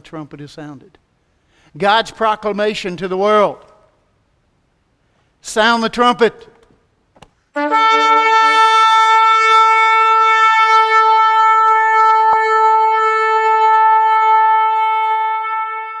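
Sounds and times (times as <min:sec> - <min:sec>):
ram's horn blast: 0:07.6 - 0:16.0.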